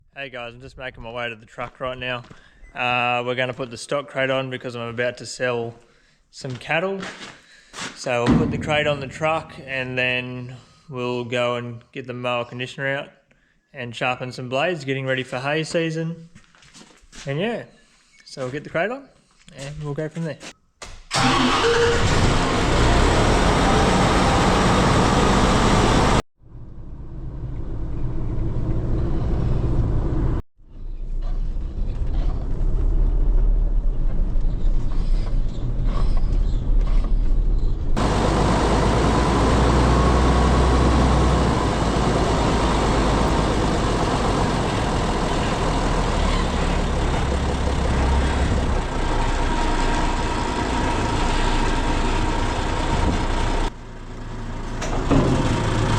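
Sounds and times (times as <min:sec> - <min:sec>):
diesel truck engine rumbling: 0:08.1 - 0:10.6, 0:21.2 - 0:55.9.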